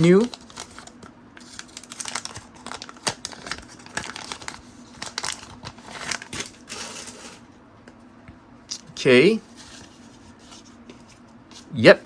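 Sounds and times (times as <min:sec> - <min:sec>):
wrapper crinkling: 0:00.0 - 0:07.4.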